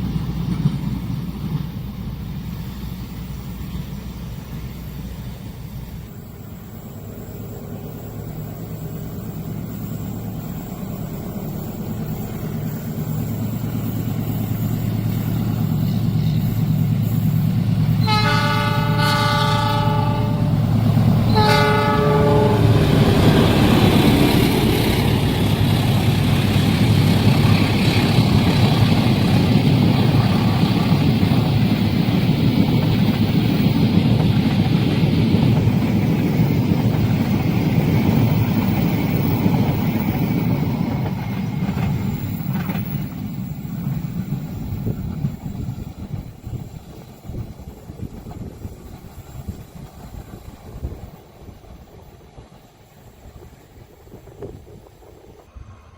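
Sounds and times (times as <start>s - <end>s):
locomotive engine hum: 0.0s - 55.9s
train wheels rumbling over rails: 0.0s - 55.9s
train chord horn blasts: 18.0s - 23.4s.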